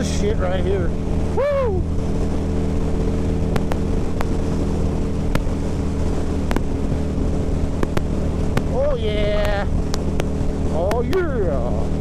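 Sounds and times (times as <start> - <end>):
motorcycle engine running: 2.2 - 11.5
sharp ticks: 3.6 - 4.6, 5.4 - 5.8, 6.5 - 6.8, 7.8 - 8.7, 9.4 - 11.2.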